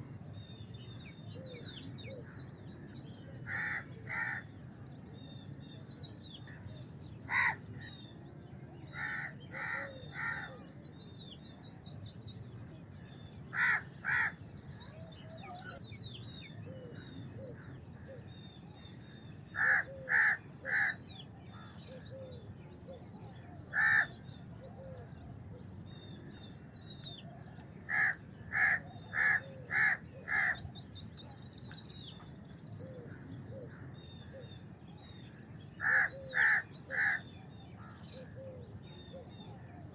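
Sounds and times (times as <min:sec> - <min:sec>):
small birds twittering: 0:00.0 - 0:39.9
crows cawing: 0:03.5 - 0:04.5, 0:07.3 - 0:07.6, 0:08.9 - 0:10.6, 0:13.5 - 0:14.4, 0:19.6 - 0:21.0, 0:23.7 - 0:24.2, 0:27.9 - 0:30.6, 0:35.8 - 0:37.3.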